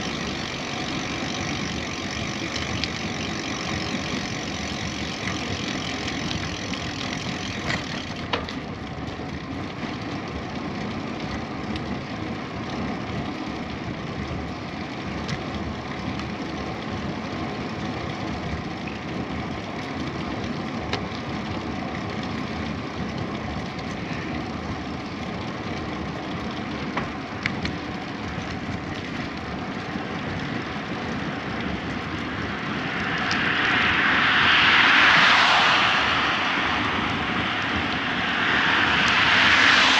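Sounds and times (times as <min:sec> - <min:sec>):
wind on microphone: 0:00.0 - 0:08.2, 0:30.4 - 0:39.9
bicycle tyres rumbling on road: 0:00.0 - 0:39.9.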